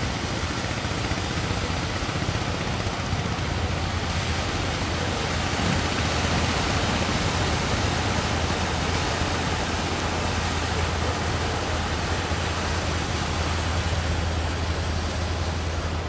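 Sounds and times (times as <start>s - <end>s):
heavy surf roaring: 0.0s - 16.0s.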